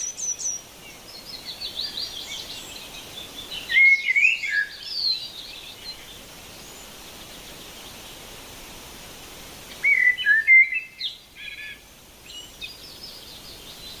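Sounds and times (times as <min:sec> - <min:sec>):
background hiss: 0:00.0 - 0:14.0
songbird singing: 0:00.0 - 0:14.0.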